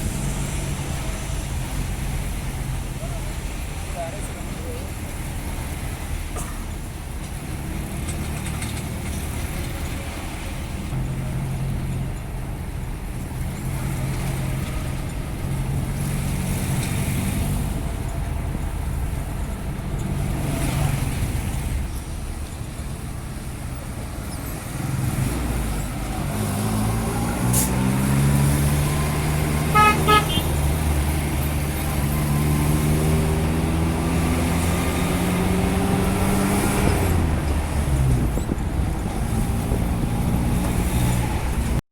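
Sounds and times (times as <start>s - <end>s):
truck engine running and revving: 0.0s - 41.8s
horn toots: 29.6s - 30.8s.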